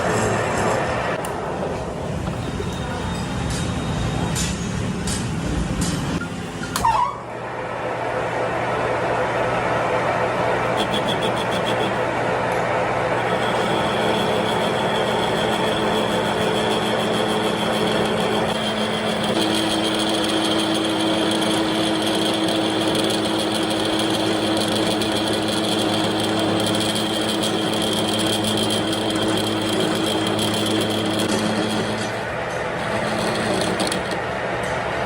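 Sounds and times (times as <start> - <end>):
steady whine: 6.1 - 35.0
machine running: 7.3 - 35.0.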